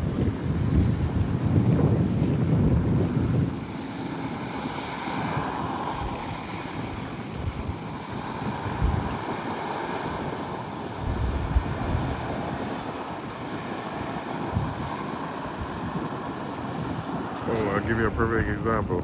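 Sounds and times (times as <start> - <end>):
boat engines droning: 0.0 - 19.0
waves washing: 0.0 - 19.0
wind buffeting microphone: 0.0 - 19.0.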